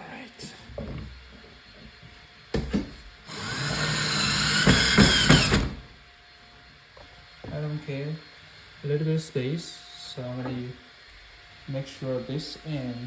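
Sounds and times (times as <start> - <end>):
power drill driving screw into wood: 3.3 - 5.9.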